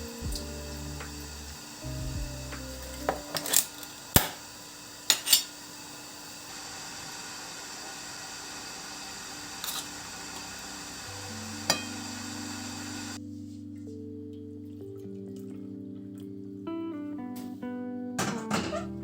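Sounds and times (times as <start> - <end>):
faint steady hiss: 0.0 - 13.8.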